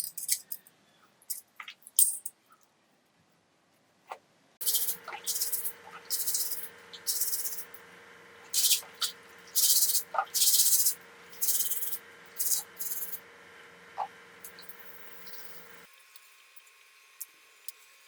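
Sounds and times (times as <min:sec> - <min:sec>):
faint steady hum: 0:03.1 - 0:18.0
spray hissing: 0:08.4 - 0:13.2.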